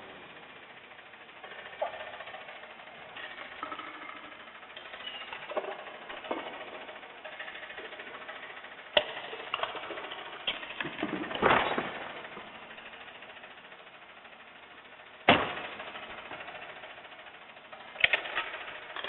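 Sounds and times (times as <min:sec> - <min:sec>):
garbage truck running: 0:00.0 - 0:19.0
metallic clanks and bangs: 0:09.0 - 0:12.5, 0:15.2 - 0:16.2.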